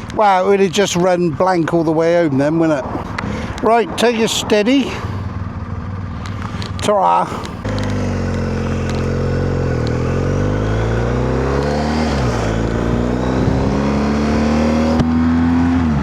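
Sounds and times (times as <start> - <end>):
motorcycle engine accelerating: 4.2 - 16.0.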